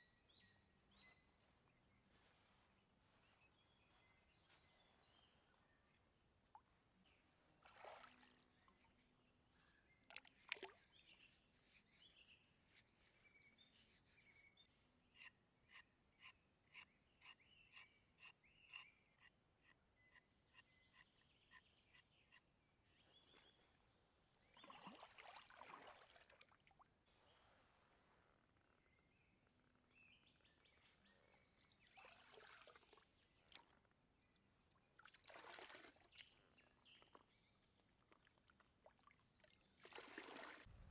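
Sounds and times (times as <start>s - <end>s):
distant bird calls: 13.1s - 23.6s.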